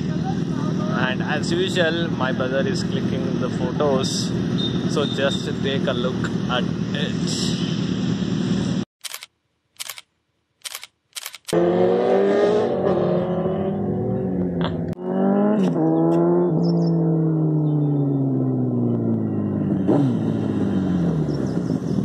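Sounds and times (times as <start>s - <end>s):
motorcycle engine revving: 0.0s - 8.9s, 11.4s - 22.0s
camera shutter clicks: 9.0s - 11.6s.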